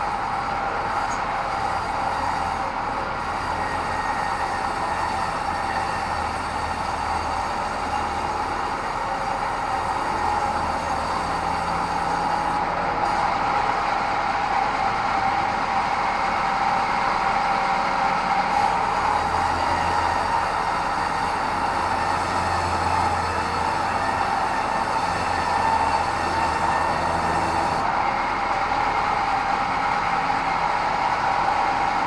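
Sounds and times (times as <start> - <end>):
band saw whining: 0.0 - 14.8, 18.4 - 28.3.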